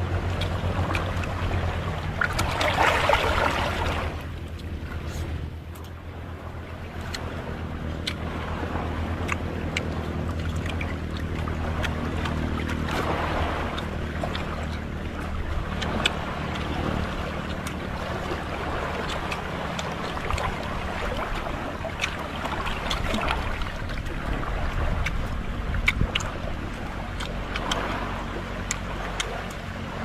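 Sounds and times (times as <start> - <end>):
low hum: 0.0 - 30.0
person chewing food: 0.2 - 2.8, 7.0 - 7.4, 8.0 - 8.4, 9.1 - 13.1, 19.0 - 23.8, 25.0 - 27.9, 28.6 - 29.6.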